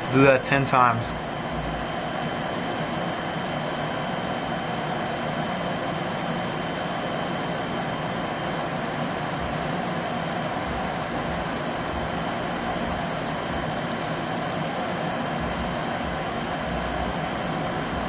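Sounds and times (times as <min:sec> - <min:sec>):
machine hum and hiss: 0:00.0 - 0:18.0.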